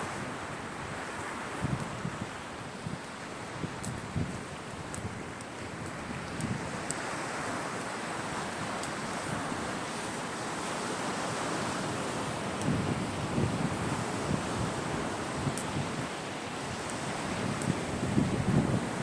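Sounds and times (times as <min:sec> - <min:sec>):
waves washing onto shore: 0:00.0 - 0:19.0
wind buffeting microphone: 0:00.0 - 0:19.0
faint high ticks: 0:03.8 - 0:04.0, 0:15.5 - 0:15.8.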